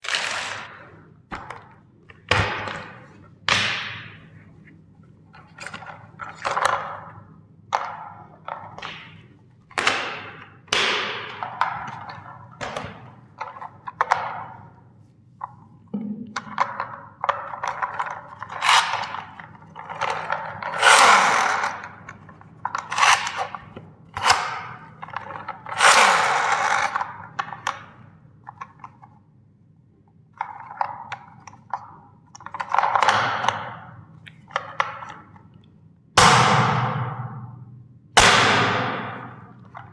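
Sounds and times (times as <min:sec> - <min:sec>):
plastic toys cracking: 0:18.5 - 0:19.3, 0:20.1 - 0:21.9, 0:22.8 - 0:23.6, 0:25.7 - 0:27.1.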